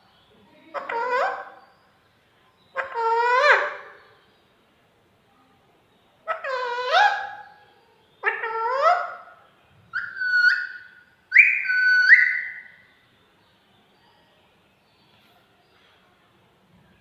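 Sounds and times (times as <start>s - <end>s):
parrot whistling upward: 10.0s - 12.8s.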